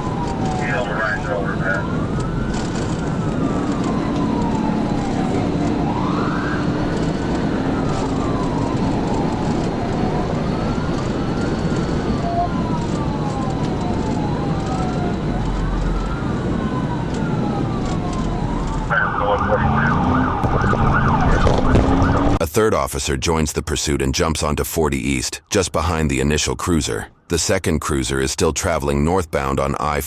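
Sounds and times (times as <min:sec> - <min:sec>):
police siren wailing: 0:00.0 - 0:22.4
road noise: 0:00.0 - 0:23.4.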